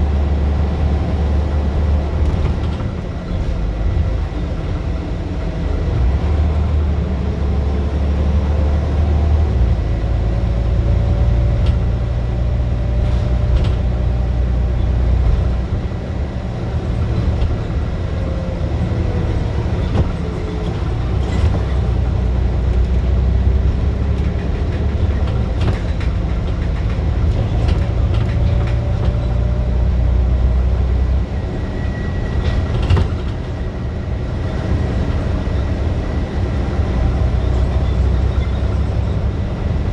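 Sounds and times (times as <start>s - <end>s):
bus engine labouring: 0.0s - 39.9s
sharp clicks and rattles: 23.6s - 29.2s.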